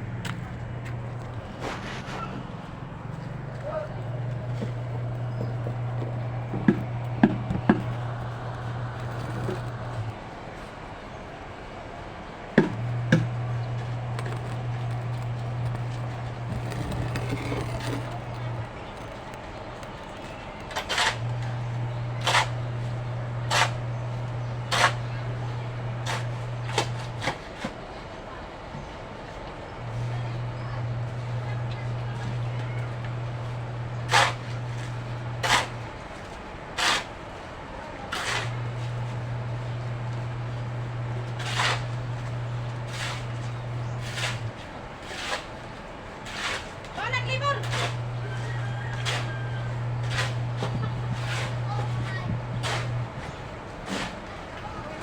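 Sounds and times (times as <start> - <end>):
steady low hum: 0.0 - 27.3
short scraping strokes: 1.4 - 3.4, 12.6 - 19.5, 41.3 - 45.5, 47.6 - 53.0.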